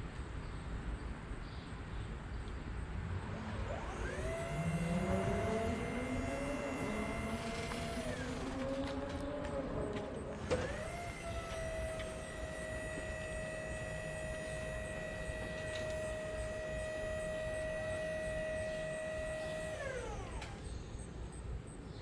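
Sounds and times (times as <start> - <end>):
motor whine winding down: 3.2 - 21.2.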